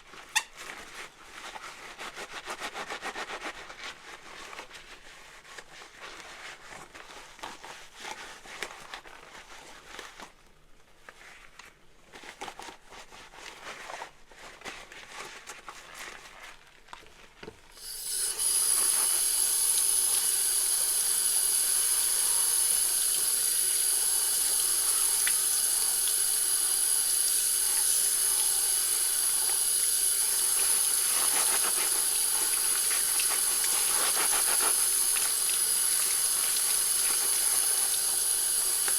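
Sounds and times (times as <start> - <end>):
tap water running: 17.8 - 38.9.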